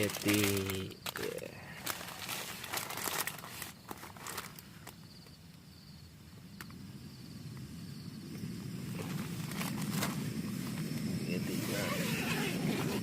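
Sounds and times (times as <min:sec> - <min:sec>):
camp cooking gear clicking: 0:00.0 - 0:05.4
insects chirping: 0:00.0 - 0:13.0.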